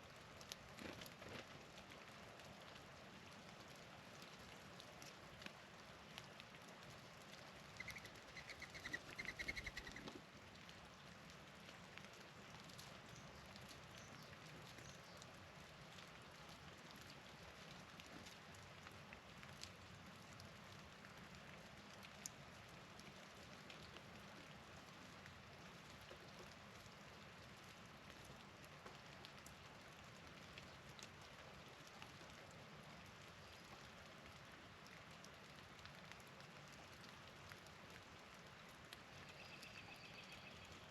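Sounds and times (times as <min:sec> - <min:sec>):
patter of falling wet snow: 0:00.0 - 0:40.9
bird calling: 0:07.8 - 0:10.1.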